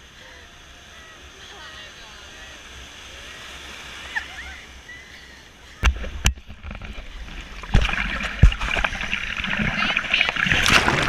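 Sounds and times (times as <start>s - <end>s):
ocean water splashing: 0.0s - 11.0s
thumps near microphone: 5.8s - 9.2s.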